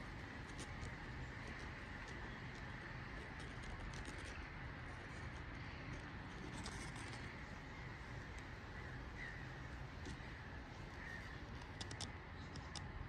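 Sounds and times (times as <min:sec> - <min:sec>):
bird calling: 0:00.0 - 0:12.8
outdoor background noise: 0:00.0 - 0:13.0.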